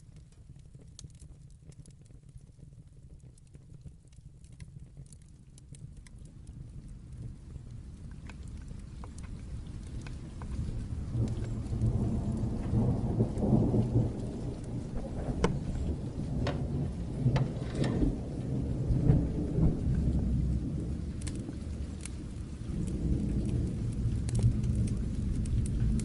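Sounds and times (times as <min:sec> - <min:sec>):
fire crackling: 0:00.0 - 0:26.0
steady rain: 0:00.0 - 0:26.0
distant thunder rumbling: 0:09.5 - 0:26.0.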